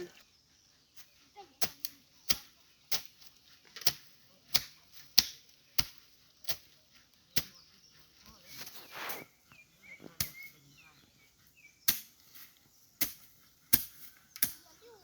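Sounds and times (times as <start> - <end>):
sharp hand tool strikes: 3.8 - 6.7, 11.8 - 12.2, 13.0 - 14.6.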